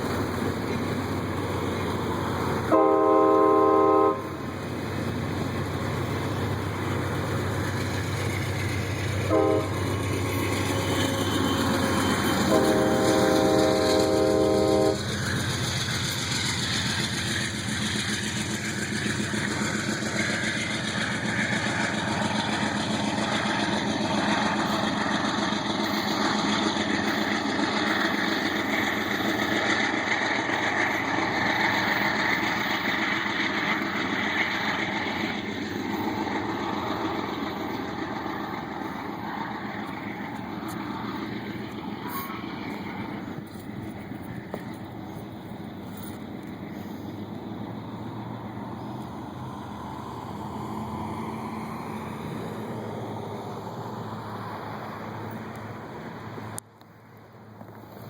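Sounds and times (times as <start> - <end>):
train rumble and rail noise: 0.0 - 58.0
train horn blasts: 2.7 - 4.4, 9.3 - 9.9, 10.7 - 15.1.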